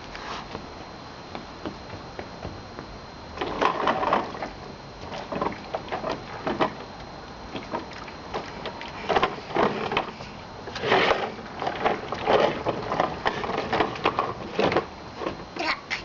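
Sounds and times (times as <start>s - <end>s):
toy trucks clattering and scraping: 9.1s - 15.4s.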